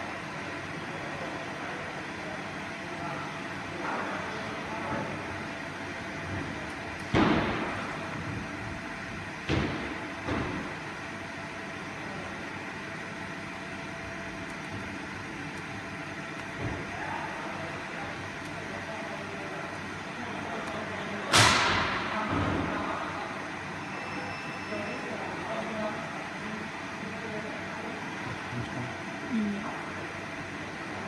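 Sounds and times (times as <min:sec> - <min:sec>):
sharp knocks and thuds: 0:07.1 - 0:07.8, 0:09.4 - 0:10.7.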